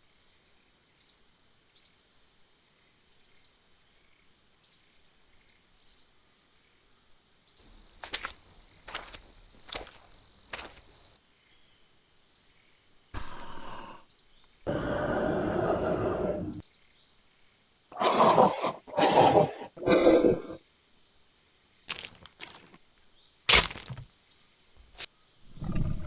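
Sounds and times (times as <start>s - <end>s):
loud animal snarls: 13.2s - 14.0s, 14.7s - 16.6s, 17.9s - 20.6s, 25.5s - 26.0s
wild animal roaring and growling: 13.2s - 14.0s, 14.7s - 16.6s, 17.9s - 20.6s, 25.5s - 26.0s.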